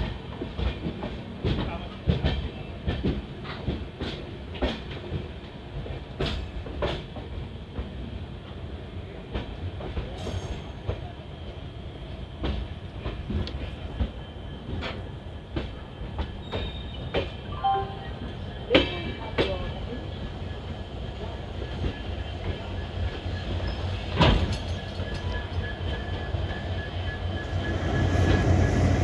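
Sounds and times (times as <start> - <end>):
train rumbling on rails: 0.0 - 29.0
train wheel squeal: 10.0 - 13.2, 13.9 - 29.0.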